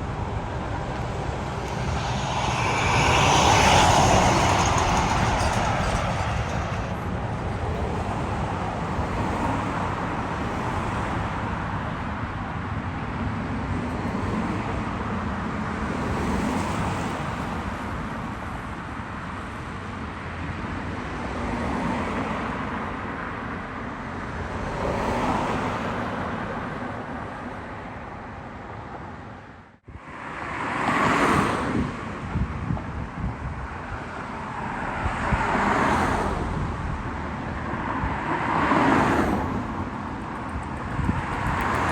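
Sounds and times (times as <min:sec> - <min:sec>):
vehicles passing by: 0:00.0 - 0:12.8, 0:34.5 - 0:41.9
road traffic rumble: 0:00.0 - 0:18.8, 0:32.0 - 0:41.9.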